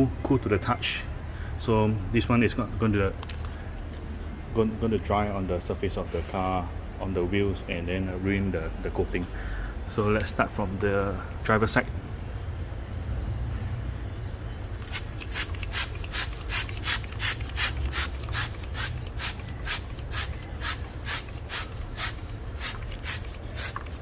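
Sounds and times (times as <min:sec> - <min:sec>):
spray bottle spritzing: 0:14.8 - 0:24.0.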